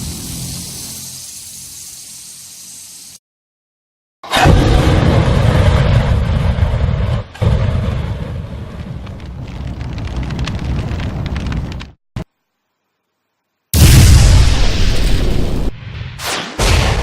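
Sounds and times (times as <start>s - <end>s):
dense rushing with low rumble: 4.9s - 11.9s
fine crackles: 9.0s - 11.9s.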